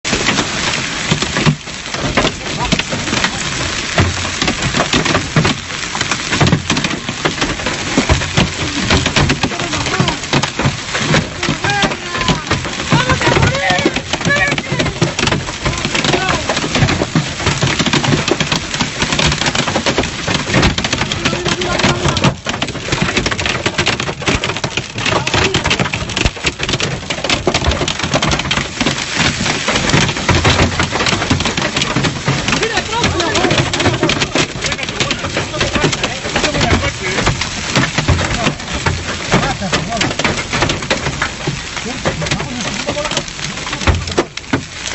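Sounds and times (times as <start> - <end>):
heavy rain falling: 0.0 - 44.9
raindrops hitting a surface: 0.0 - 44.9.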